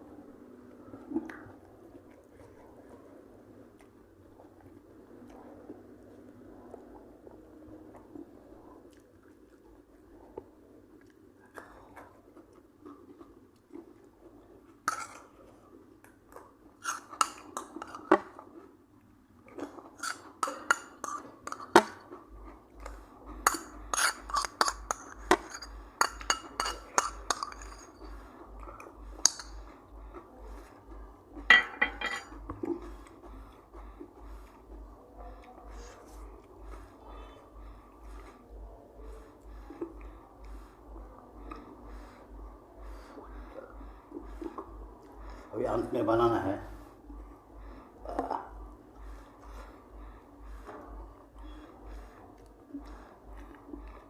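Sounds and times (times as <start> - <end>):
person chewing: 0.8 - 31.5, 50.8 - 54.0
dishes and cutlery clinking: 23.5 - 28.2, 31.4 - 32.7.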